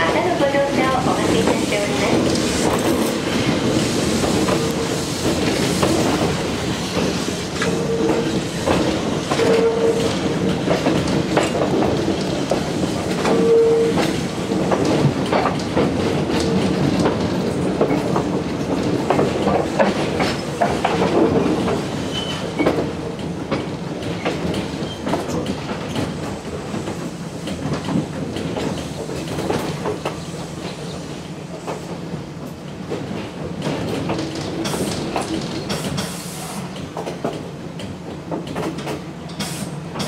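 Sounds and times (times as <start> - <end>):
train running rumble: 0.0 - 40.0
wheel squeals: 22.0 - 22.7.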